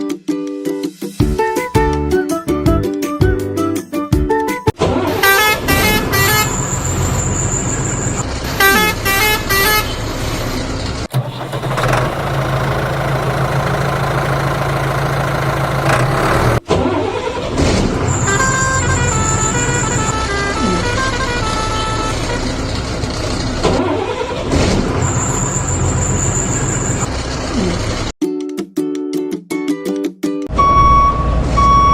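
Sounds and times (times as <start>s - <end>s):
musical truck horn tune: 5.0s - 10.2s, 18.1s - 23.0s.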